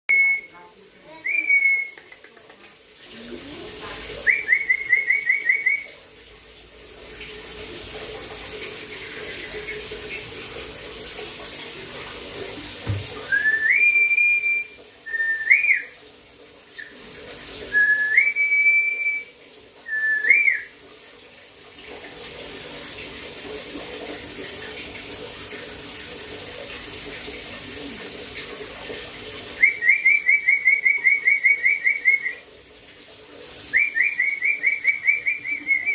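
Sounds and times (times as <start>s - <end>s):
clear whistling with trills: 4.3s - 6.0s, 13.3s - 15.9s, 17.7s - 20.7s, 29.6s - 32.4s, 33.7s - 35.9s.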